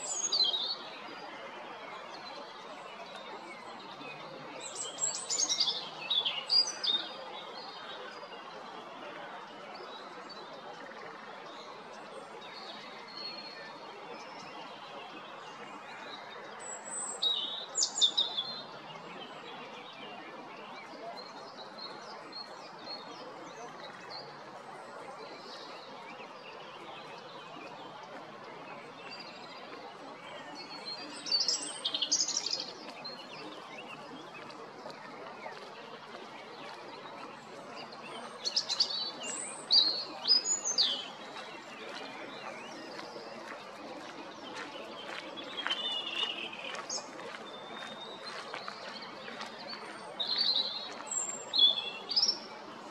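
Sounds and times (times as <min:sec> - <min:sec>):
robin singing: 0:45.4 - 0:47.6.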